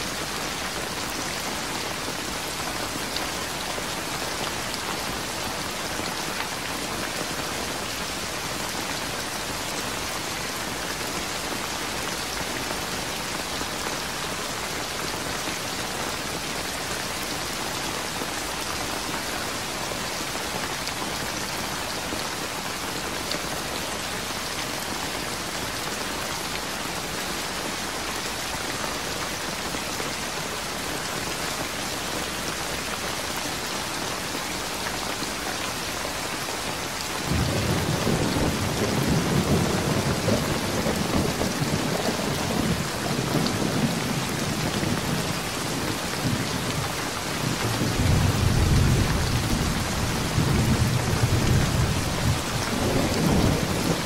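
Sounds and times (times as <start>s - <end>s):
heavy rain pattering: 0.0s - 54.0s.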